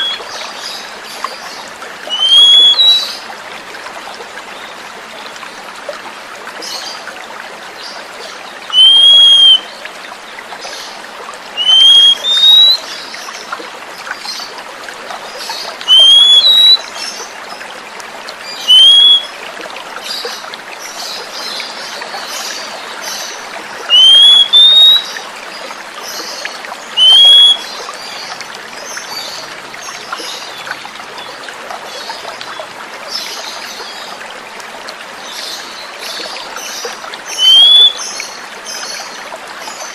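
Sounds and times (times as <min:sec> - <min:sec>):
bird whistling: 0:00.0 - 0:00.2, 0:02.1 - 0:03.1, 0:08.7 - 0:09.6, 0:11.6 - 0:12.8, 0:15.9 - 0:16.8, 0:18.7 - 0:19.3, 0:23.9 - 0:25.1, 0:27.0 - 0:27.7, 0:37.3 - 0:38.0
running water trickling: 0:00.0 - 0:39.9.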